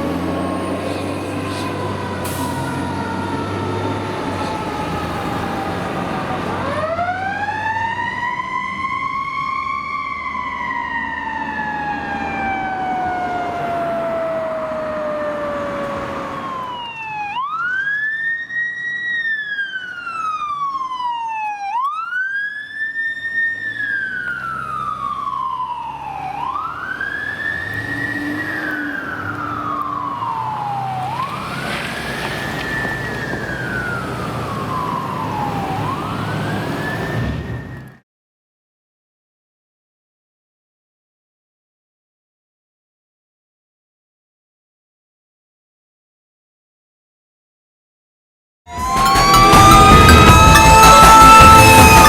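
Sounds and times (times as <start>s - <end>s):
fire engine siren wailing: 0.0s - 38.0s, 48.7s - 52.0s.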